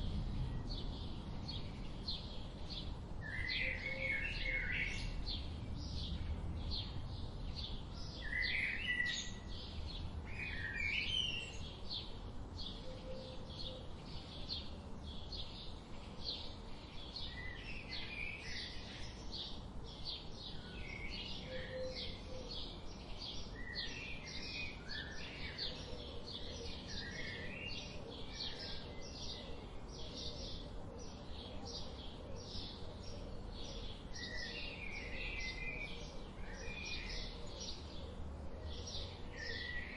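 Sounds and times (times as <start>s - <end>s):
low outdoor rumble: 0.0s - 10.8s
birds chirping and singing: 0.0s - 39.9s.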